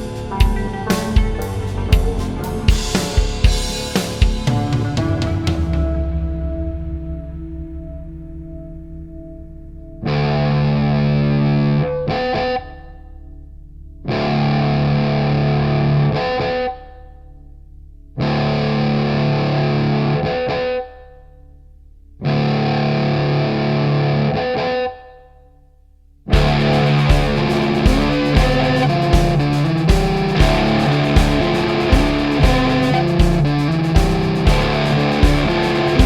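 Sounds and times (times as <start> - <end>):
distorted electric guitar chords: 0.0 - 21.6, 22.2 - 25.2, 26.3 - 36.0
low drone: 4.7 - 10.0.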